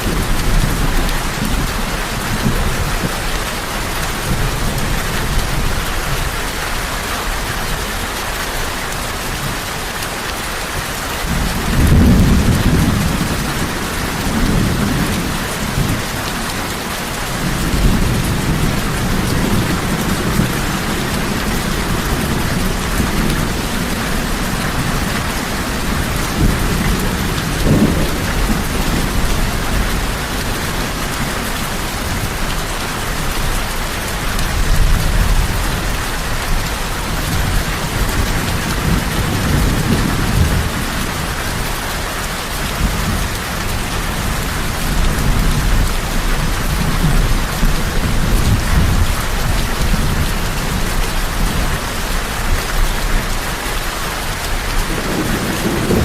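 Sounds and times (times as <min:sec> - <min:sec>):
heavy rain falling: 0:00.0 - 0:56.0
low thunder rumbling: 0:11.2 - 0:41.7, 0:54.5 - 0:56.0.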